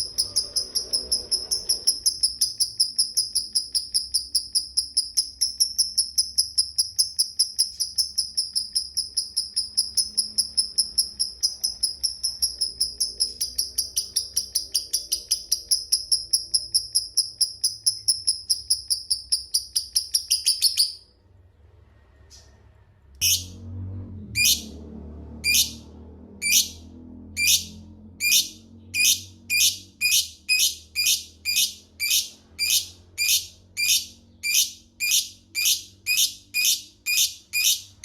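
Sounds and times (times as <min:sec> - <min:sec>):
lovebird shrill chatter: 0:27.4 - 0:38.0.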